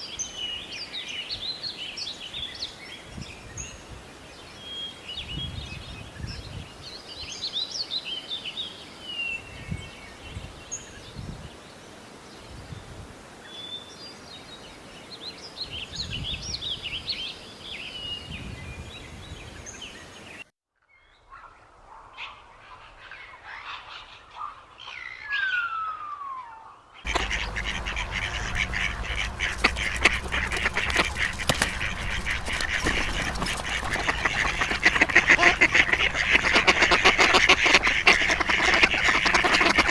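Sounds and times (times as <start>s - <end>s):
dense chorus of birds: 0.0s - 12.8s, 21.0s - 39.9s.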